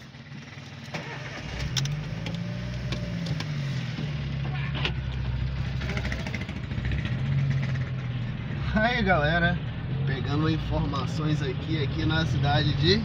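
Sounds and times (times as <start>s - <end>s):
car engine pulling away: 0.5s - 8.3s.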